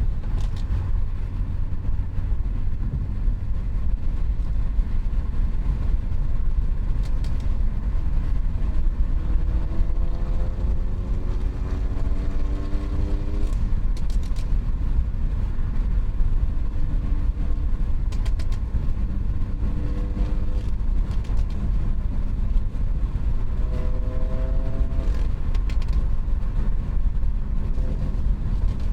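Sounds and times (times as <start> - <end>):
car engine exhaust rumble: 0.0 - 28.9
road noise: 0.0 - 28.9.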